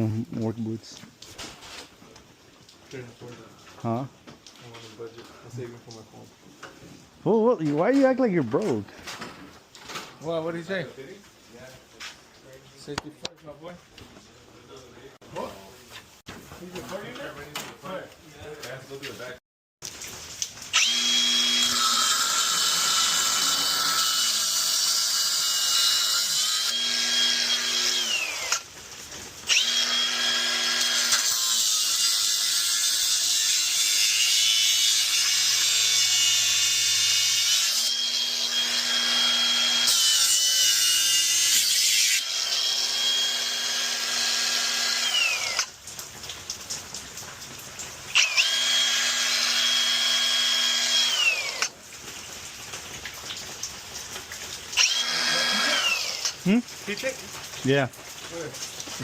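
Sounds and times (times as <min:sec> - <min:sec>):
electric power tool whining: 0:20.7 - 0:28.7, 0:29.5 - 0:45.7, 0:48.1 - 0:51.7, 0:54.8 - 0:56.4.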